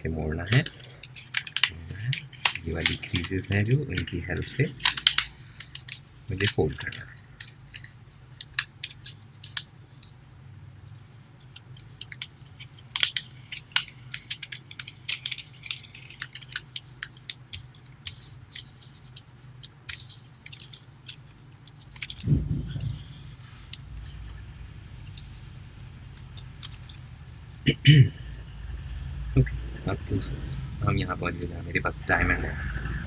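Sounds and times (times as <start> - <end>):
paper crinkling while folded: 0.3 - 24.0, 26.1 - 27.7
low hum: 22.0 - 33.0
dull thump: 22.2 - 23.0.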